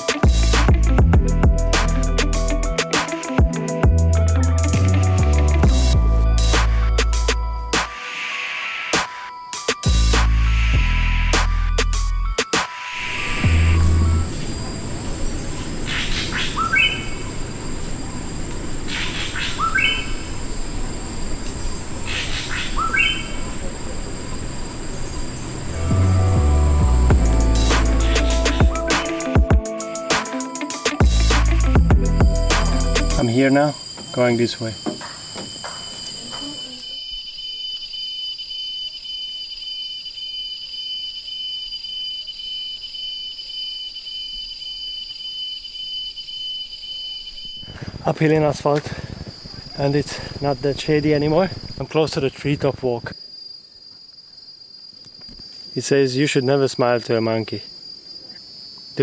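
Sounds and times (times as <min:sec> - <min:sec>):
cicadas singing: 0:00.0 - 0:59.0
bird calling: 0:15.4 - 0:17.3, 0:18.9 - 0:20.6, 0:22.0 - 0:25.8, 0:27.2 - 0:37.8.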